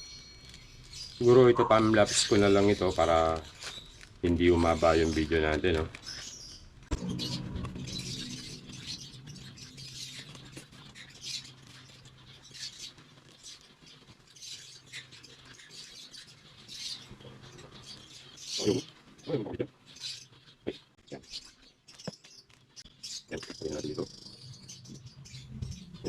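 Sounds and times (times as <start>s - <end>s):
high-pitched scrapes and clicks: 0.0s - 17.4s.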